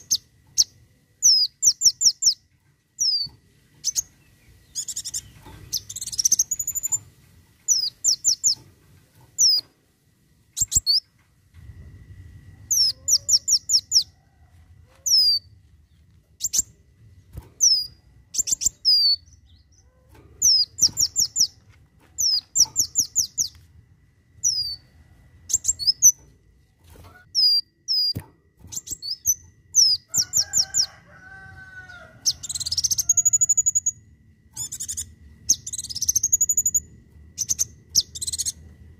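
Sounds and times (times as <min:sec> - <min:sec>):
sunbird singing sharp downward notes: 0:12.5 - 0:14.2, 0:15.0 - 0:16.8, 0:17.6 - 0:21.6, 0:24.4 - 0:26.2, 0:34.6 - 0:38.7.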